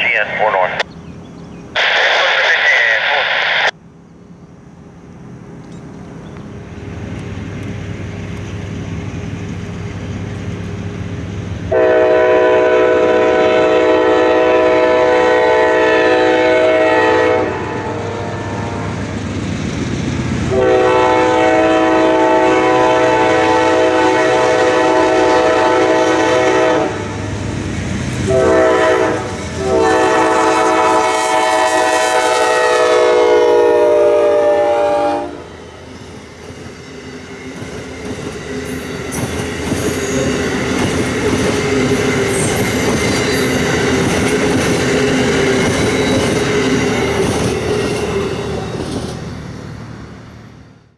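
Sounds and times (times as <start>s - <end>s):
locomotive engine rumble: 0.0s - 13.8s
train air horn blasts: 11.7s - 18.9s, 20.5s - 27.2s, 28.2s - 35.5s.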